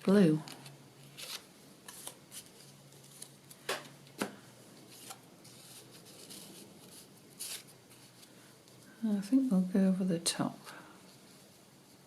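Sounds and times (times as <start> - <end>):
paper rustling: 0.4 - 8.8.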